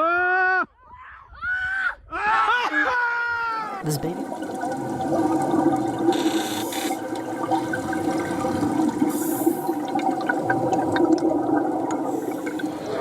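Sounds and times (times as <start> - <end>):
rushing gurgling water: 3.8 - 13.0.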